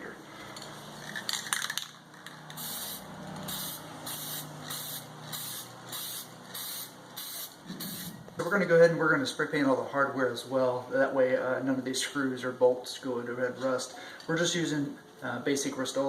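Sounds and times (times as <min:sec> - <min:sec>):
aerosol spray hissing: 0:02.6 - 0:08.2.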